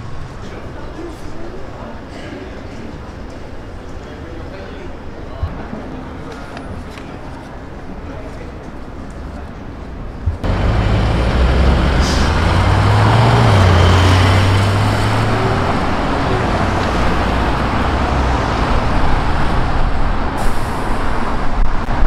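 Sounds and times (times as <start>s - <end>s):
road noise: 0.0s - 22.0s
car engine accelerating: 10.3s - 20.4s.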